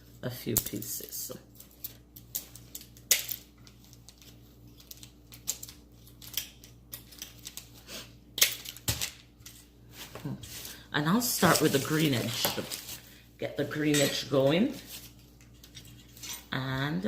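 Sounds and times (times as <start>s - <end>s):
wire handling: 1.5s - 10.8s.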